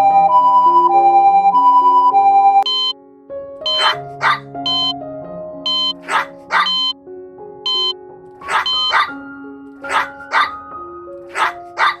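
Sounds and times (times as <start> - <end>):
dog barking: 3.7 - 4.5, 6.0 - 6.9, 8.4 - 9.2, 9.8 - 10.6, 11.3 - 12.0.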